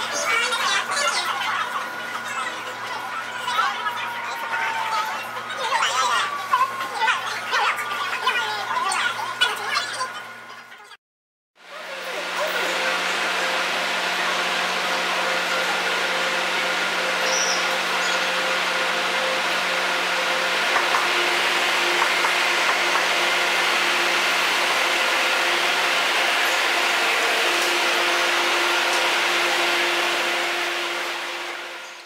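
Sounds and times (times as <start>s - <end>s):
motor tones: 11.8s - 32.0s
train rushing noise: 11.9s - 31.8s.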